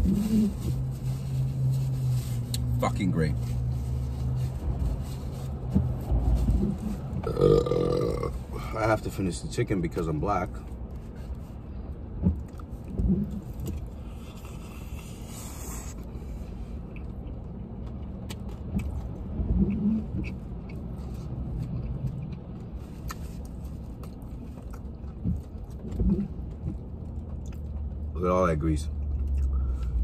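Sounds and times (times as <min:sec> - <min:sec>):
low car rumble: 0:00.0 - 0:30.0
person chewing: 0:12.4 - 0:16.1, 0:16.7 - 0:28.0, 0:29.0 - 0:30.0.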